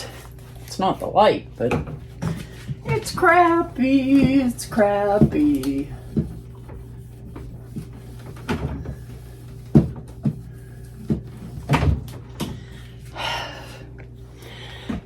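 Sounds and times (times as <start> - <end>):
steady low hum: 0.0 - 15.0
objects clunking in refrigerator: 1.6 - 6.8, 7.4 - 12.7.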